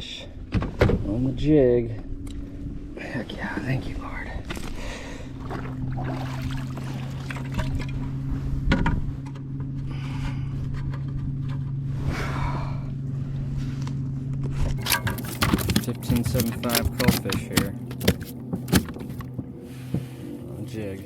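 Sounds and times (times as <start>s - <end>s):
steady low hum: 0.0s - 21.0s
water splashing against hull: 5.3s - 8.2s.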